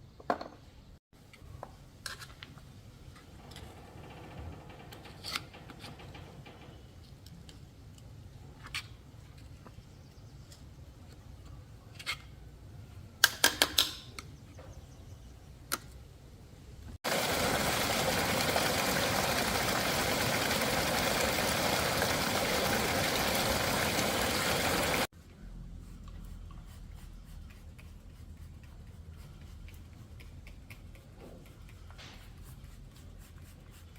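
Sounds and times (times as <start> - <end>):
small tools clicking and knocking: 13.2 - 14.3.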